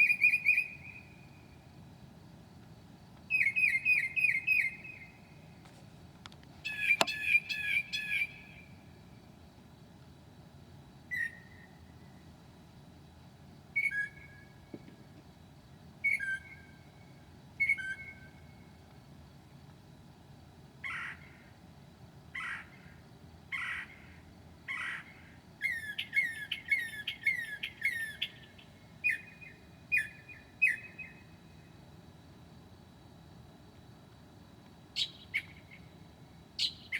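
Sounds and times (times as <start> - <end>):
bird singing varied phrases: 0.0 - 1.4, 3.3 - 5.3, 6.6 - 8.8, 11.1 - 11.7, 13.8 - 14.5, 16.0 - 16.9, 17.6 - 18.5, 24.7 - 31.4, 35.0 - 35.9, 36.6 - 36.9.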